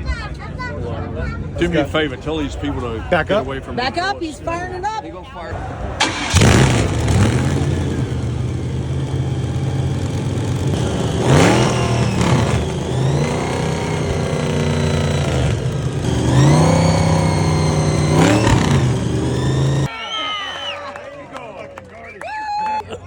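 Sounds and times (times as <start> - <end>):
engines revving: 5.5 - 19.9.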